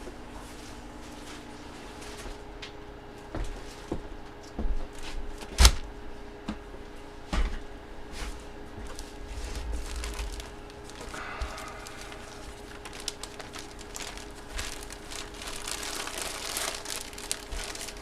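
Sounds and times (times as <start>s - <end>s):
faint steady hum: 0.0s - 18.0s
package knocks and rustles: 12.7s - 18.0s.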